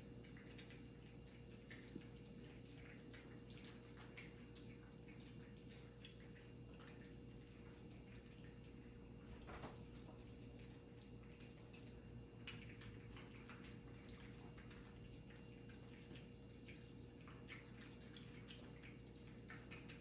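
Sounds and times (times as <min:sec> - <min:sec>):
cats chewing and smacking: 0:00.0 - 0:20.0.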